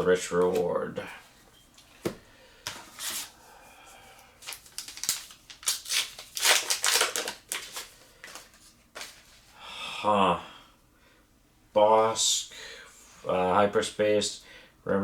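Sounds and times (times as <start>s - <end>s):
foil wrapper crinkling: 4.4s - 9.3s.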